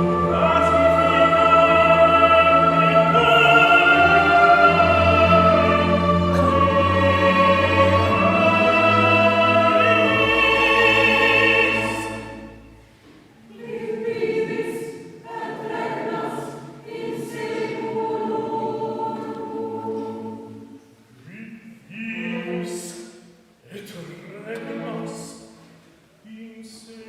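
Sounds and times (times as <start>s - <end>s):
chamber orchestra: 0.0s - 20.9s
mixed choir singing: 0.0s - 21.0s.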